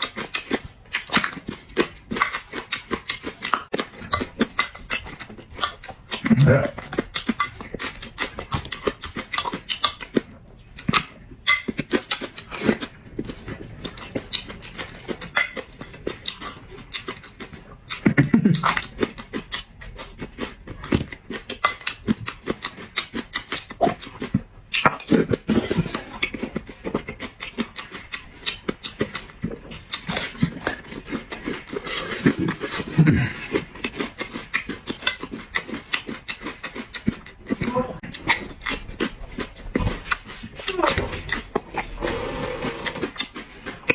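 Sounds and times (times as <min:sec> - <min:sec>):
person chewing and smacking lips: 0:00.0 - 0:43.9.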